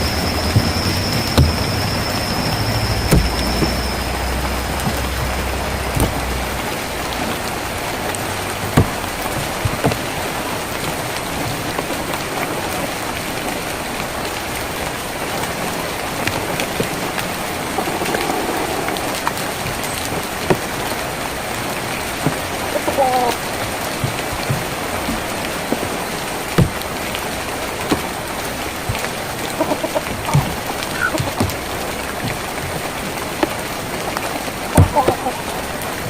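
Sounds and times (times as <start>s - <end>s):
rain on a tin roof: 0.0s - 36.0s.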